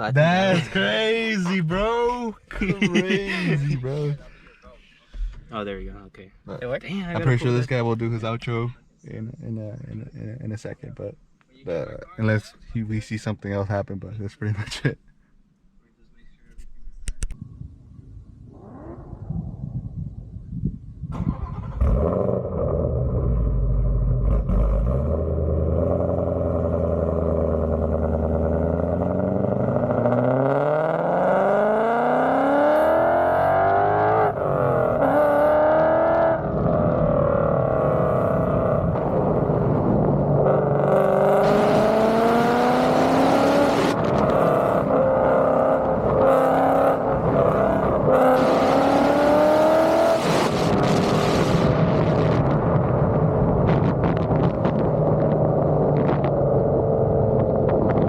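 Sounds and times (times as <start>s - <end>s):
wind and road rush: 16.9s - 58.0s
car engine rumbling and revving: 21.0s - 58.0s.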